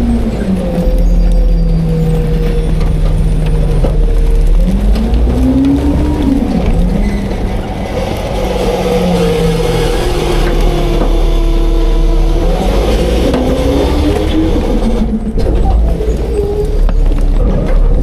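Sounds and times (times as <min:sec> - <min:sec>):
garbage truck diesel engine revving: 0:00.0 - 0:18.0.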